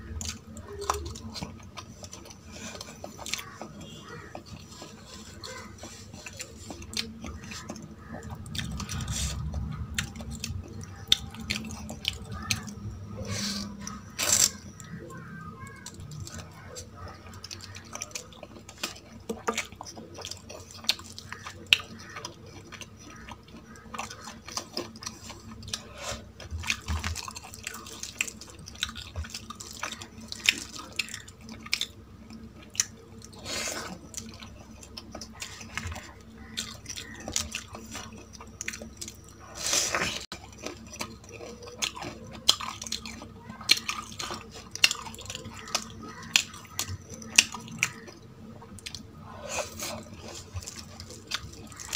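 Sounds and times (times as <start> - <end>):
wet chewing and lip smacks: 0.0 - 51.9.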